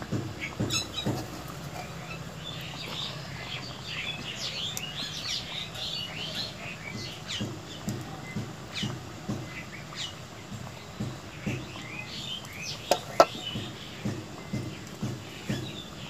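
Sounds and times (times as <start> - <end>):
soft knocks: 0.0 - 2.0, 12.8 - 15.8
birds chirping: 0.0 - 16.0.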